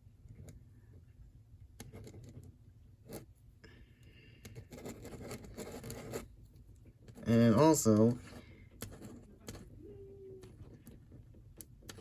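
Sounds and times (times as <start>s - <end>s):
drawing tool scratching on paper: 1.8s - 3.3s, 4.4s - 6.3s, 7.0s - 9.8s.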